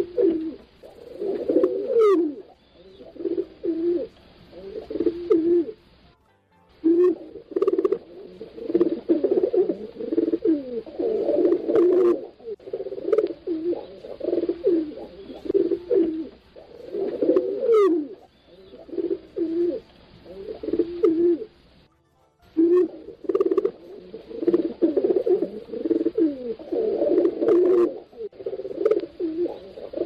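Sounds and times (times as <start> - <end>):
pigeons cooing: 0.0 - 5.9, 6.8 - 21.7, 22.6 - 30.0
high chirp: 4.1 - 10.1, 17.8 - 25.7.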